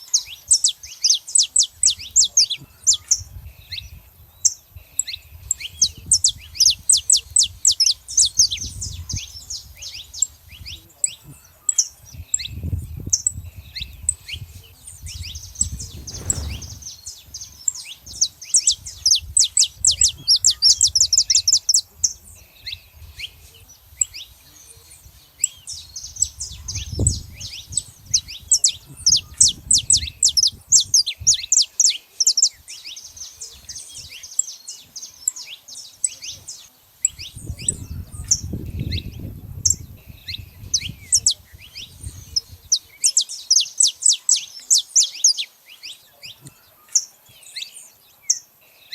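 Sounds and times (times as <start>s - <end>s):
flock of finches chirping: 0.0s - 48.9s
low rumble: 15.6s - 17.6s.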